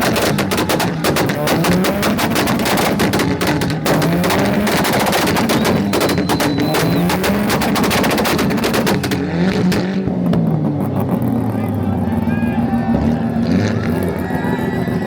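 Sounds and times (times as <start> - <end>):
exhaust popping and banging: 0.0 - 11.4
car engine on rev limiter: 0.0 - 15.0.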